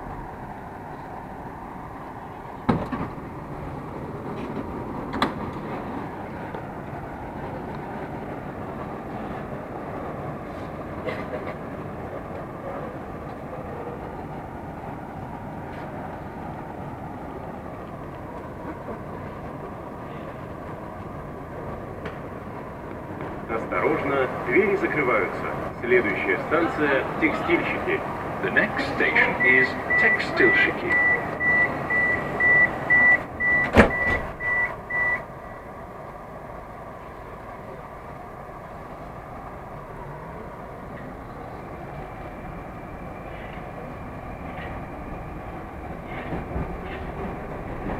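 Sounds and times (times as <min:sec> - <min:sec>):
metro train hum: 0:00.0 - 0:47.9
train doors banging shut: 0:02.6 - 0:03.4, 0:04.4 - 0:05.8, 0:31.4 - 0:34.6
door warning beeps: 0:29.3 - 0:35.3.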